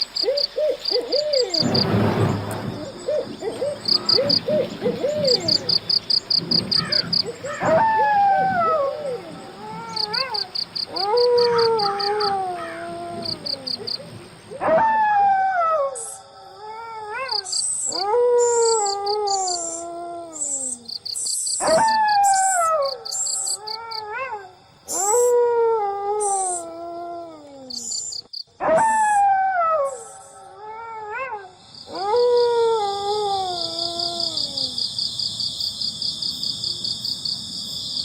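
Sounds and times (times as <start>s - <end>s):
insects chirping: 0.0s - 38.0s
dogs howling: 2.8s - 20.9s, 21.6s - 28.0s, 28.6s - 34.8s.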